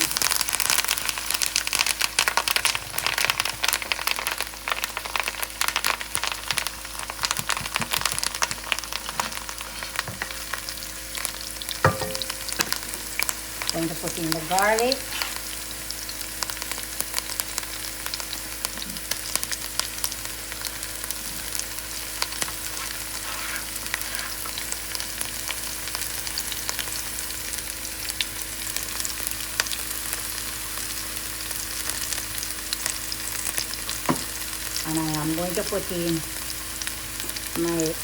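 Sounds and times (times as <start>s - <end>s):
vegetables frying in hot oil: 0.0s - 38.0s.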